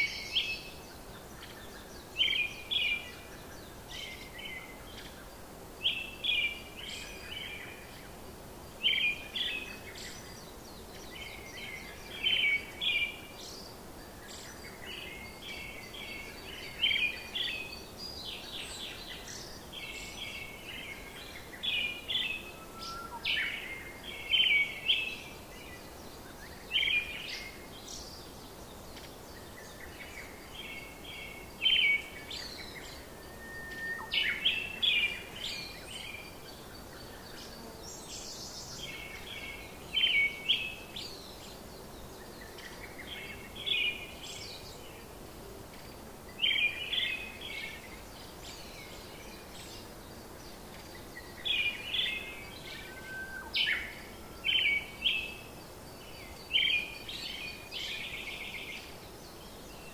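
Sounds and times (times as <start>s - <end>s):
steady background hiss: 0.0s - 59.9s
bird chirping: 8.8s - 45.1s.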